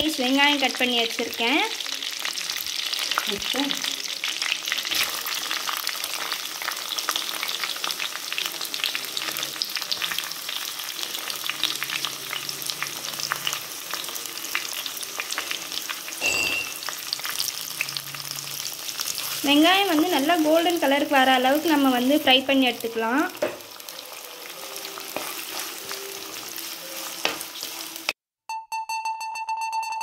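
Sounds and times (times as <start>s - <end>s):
onion frying in hot oil: 0.0s - 28.2s
wooden spoon stirring: 24.9s - 27.8s.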